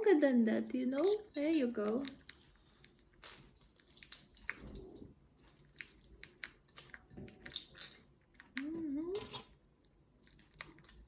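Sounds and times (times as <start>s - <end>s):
parrot cracking a nut with beak: 1.8s - 4.8s, 5.5s - 8.7s.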